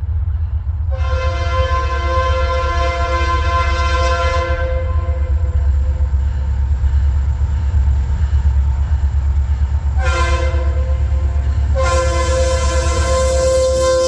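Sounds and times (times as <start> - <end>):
locomotive horn blasts: 0.9 - 5.5, 10.0 - 14.0.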